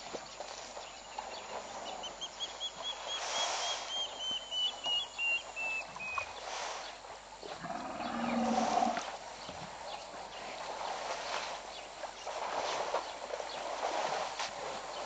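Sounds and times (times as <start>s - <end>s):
background noise: 0.0s - 15.0s
deeper animal call: 7.6s - 9.0s.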